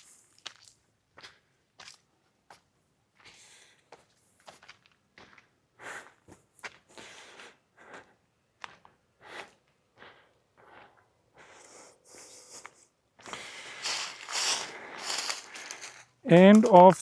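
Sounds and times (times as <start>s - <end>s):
footsteps scuffing on dry trail: 0.0s - 2.6s, 3.2s - 5.4s, 13.2s - 17.0s.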